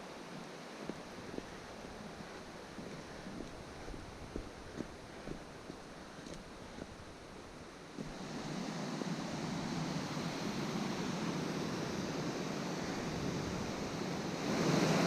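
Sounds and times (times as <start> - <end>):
river rushing over rocks: 0.0 - 15.0
footsteps on a path: 0.4 - 8.2.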